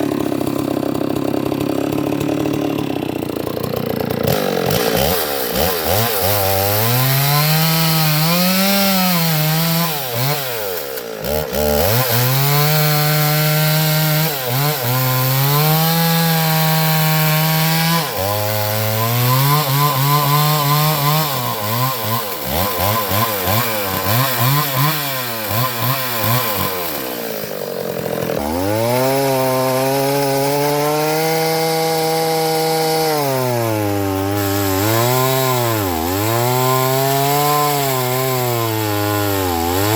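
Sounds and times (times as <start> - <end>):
chainsaw cutting logs: 0.0 - 39.9.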